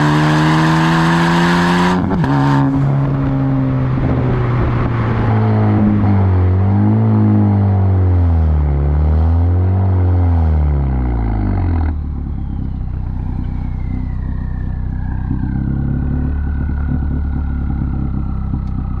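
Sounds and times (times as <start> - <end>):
car engine idling: 11.7 - 19.0
faint high whine: 11.9 - 16.6.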